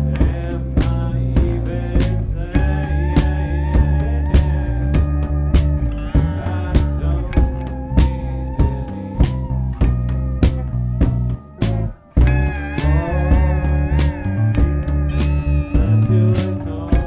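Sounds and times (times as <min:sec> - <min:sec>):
bass line: 0:00.0 - 0:17.0
drum hits: 0:00.2 - 0:17.0
guitar playing wavering notes: 0:05.2 - 0:17.0.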